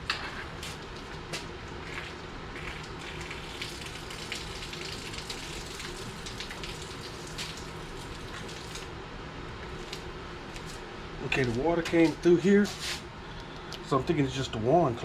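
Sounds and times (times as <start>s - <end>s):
water running and spattering from hose: 1.9s - 8.9s.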